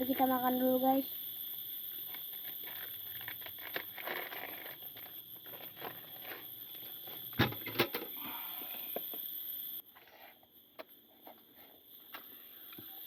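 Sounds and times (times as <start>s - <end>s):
rustling and crinkling: 2.0s - 7.4s.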